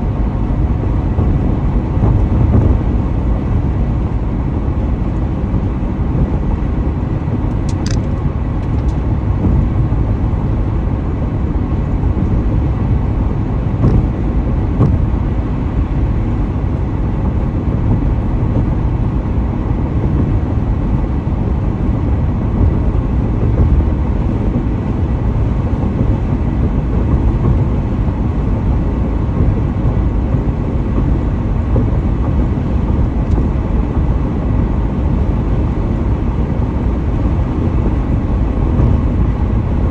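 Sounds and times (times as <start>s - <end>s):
car driving at highway speed: 0.0s - 39.9s.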